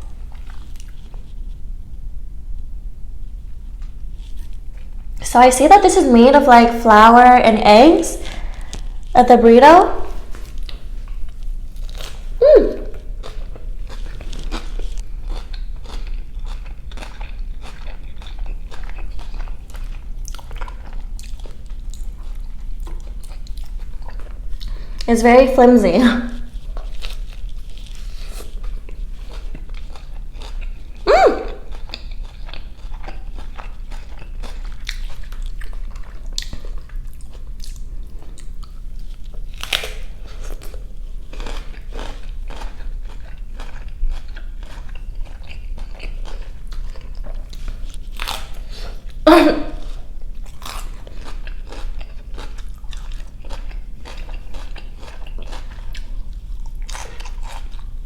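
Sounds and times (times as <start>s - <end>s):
person chewing crunchy food: 0.0s - 2.7s, 10.0s - 25.1s, 26.4s - 58.0s
loud mouth noises: 12.4s - 13.2s, 31.0s - 31.7s, 49.3s - 49.9s.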